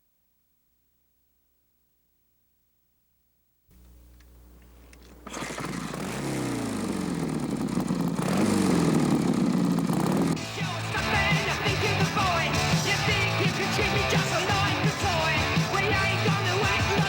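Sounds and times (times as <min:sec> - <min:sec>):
motorcycle engine starting and revving: 0:03.7 - 0:17.0.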